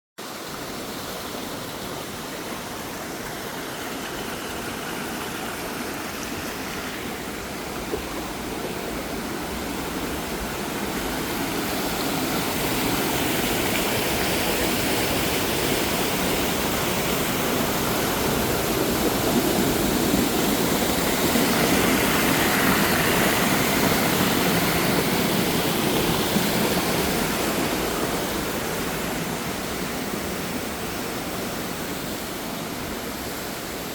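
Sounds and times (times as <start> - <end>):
waterfall and stream rushing: 0.2 - 33.9.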